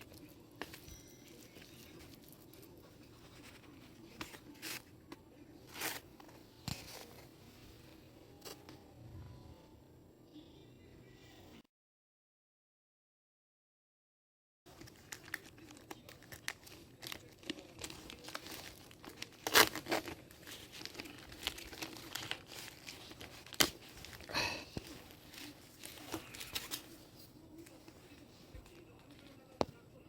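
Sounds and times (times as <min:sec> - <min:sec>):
crinkling and crackling: 0:14.7 - 0:29.8.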